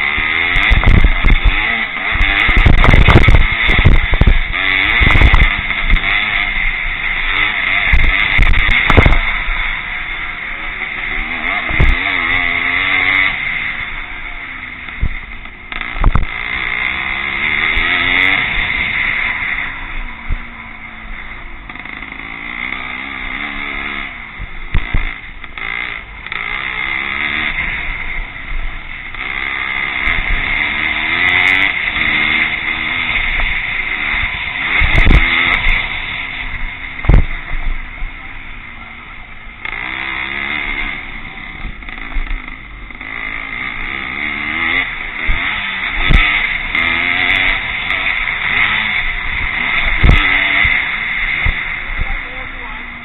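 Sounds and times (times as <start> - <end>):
motorcycle engines revving: 0.0 - 53.0
short low thumps: 0.5 - 6.1, 7.9 - 9.5, 11.7 - 13.3, 14.9 - 16.4, 36.5 - 38.5.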